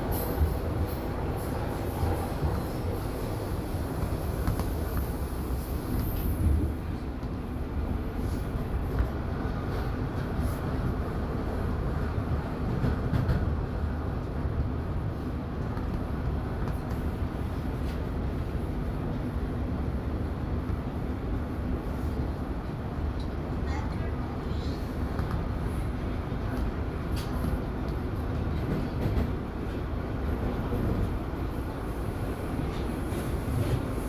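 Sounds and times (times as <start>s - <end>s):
subway train rumbling: 0.0s - 34.0s.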